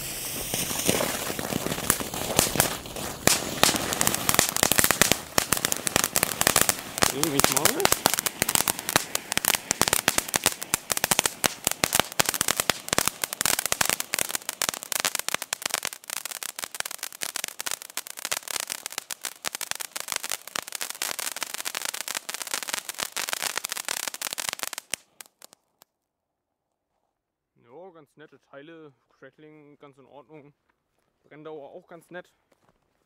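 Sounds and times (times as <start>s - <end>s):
fireworks fountains crackling: 0.0s - 25.6s.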